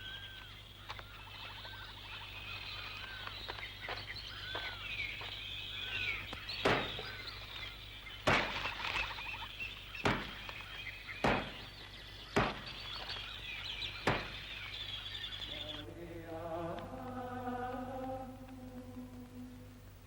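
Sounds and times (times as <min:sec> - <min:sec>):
birds chirping and singing: 0:00.0 - 0:19.8
axe chopping wood: 0:06.6 - 0:07.1, 0:08.2 - 0:08.9, 0:10.0 - 0:13.0, 0:14.0 - 0:14.4.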